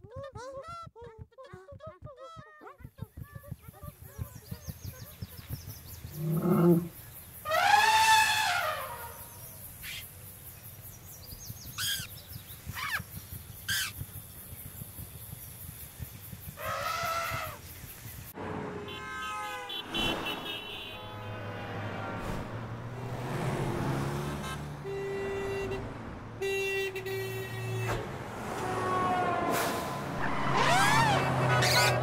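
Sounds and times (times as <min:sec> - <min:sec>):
horn-like tones: 0:18.4 - 0:22.6, 0:24.1 - 0:32.0
loud rising and falling calls: 0:30.0 - 0:32.0.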